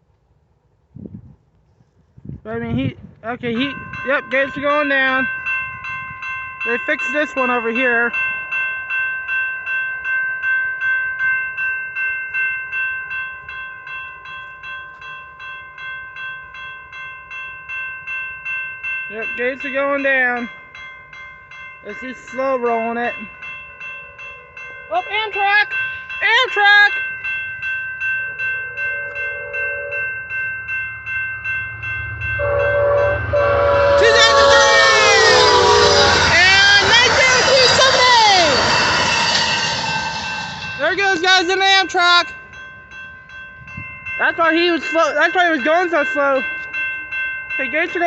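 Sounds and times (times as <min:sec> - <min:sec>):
train noise: 0:00.0 - 0:09.8, 0:13.4 - 0:48.0
crossing warning bell ringing: 0:02.5 - 0:48.0
train horn blasts: 0:28.7 - 0:30.2, 0:32.4 - 0:38.6.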